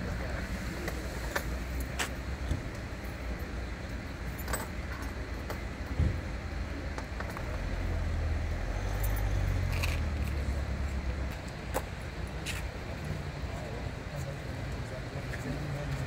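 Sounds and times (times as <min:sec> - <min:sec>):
vehicle engine rumbling: 0:00.0 - 0:16.0
small metallic clinks: 0:04.3 - 0:05.6.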